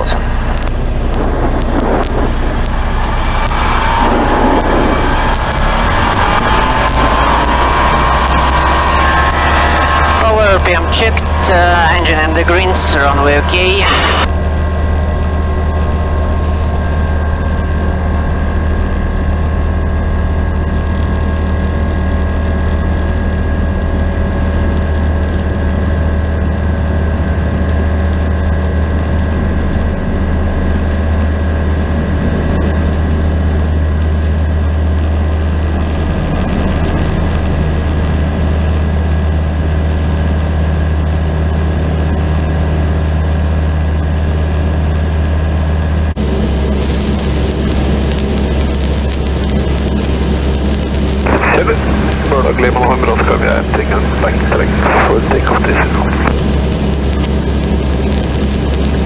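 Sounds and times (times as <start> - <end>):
aircraft engine and propeller drone: 0.0 - 46.8.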